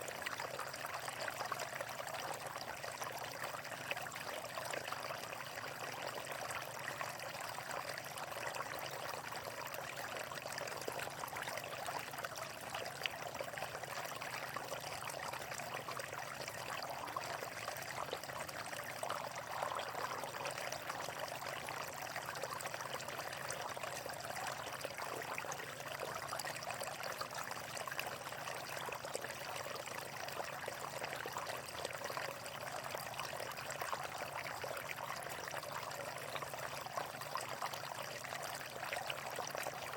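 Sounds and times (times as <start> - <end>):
running water: 10.6 - 26.0.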